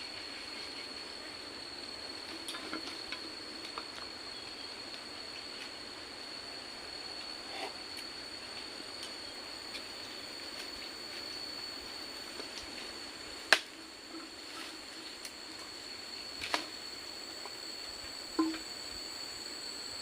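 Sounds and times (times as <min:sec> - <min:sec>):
soft even hiss: 0:00.0 - 0:20.0
steady high-pitched whine: 0:00.0 - 0:20.0
sharp knocks: 0:18.4 - 0:18.6.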